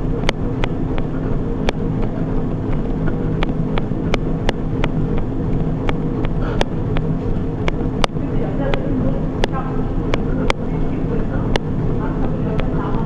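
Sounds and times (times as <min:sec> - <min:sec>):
treadmill motor hum: 0:00.0 - 0:13.0.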